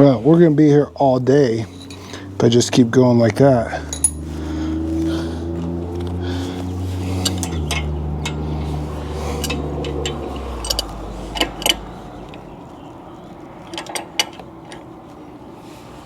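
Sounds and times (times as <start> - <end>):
steady low hum: 0.0 - 16.0
metallic clinks of hand tools: 1.7 - 2.2, 3.8 - 4.3, 7.2 - 12.4.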